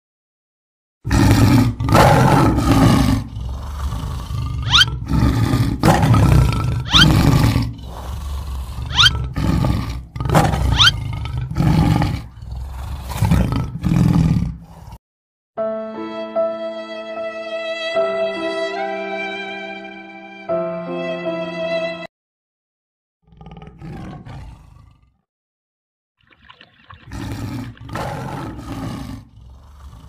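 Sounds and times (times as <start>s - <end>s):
lion roaring: 1.1s - 15.0s, 23.3s - 25.2s, 27.1s - 30.0s
music: 15.6s - 22.1s.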